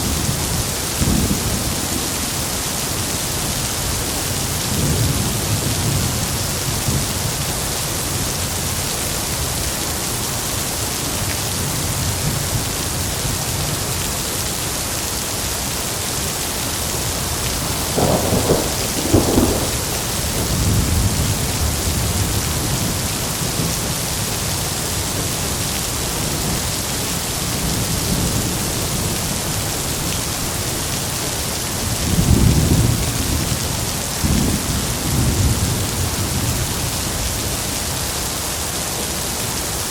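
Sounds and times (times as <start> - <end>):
heavy rain: 0.0 - 39.9
low rolling thunder: 17.0 - 23.8, 31.8 - 36.9
thunder claps: 17.5 - 22.9.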